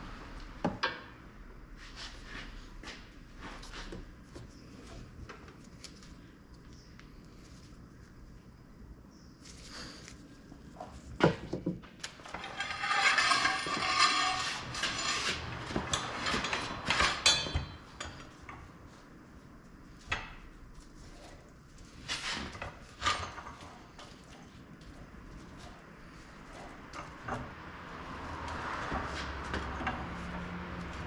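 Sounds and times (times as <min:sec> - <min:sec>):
metal tools knocking and clinking: 0:15.8 - 0:18.3.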